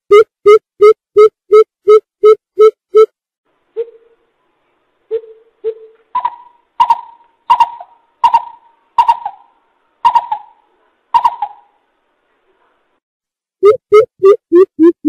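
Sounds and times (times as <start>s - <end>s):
bird deep hooting notes: 5.1s - 10.6s, 11.2s - 11.8s.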